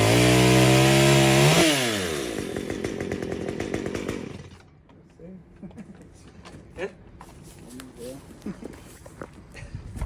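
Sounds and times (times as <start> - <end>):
chainsaw cutting tree trunk: 0.0 - 4.6.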